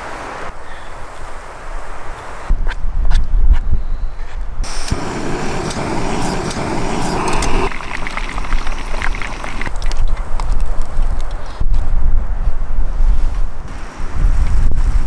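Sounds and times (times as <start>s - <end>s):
wind buffeting microphone: 2.5s - 15.0s
fish frying in hot oil: 5.0s - 9.8s.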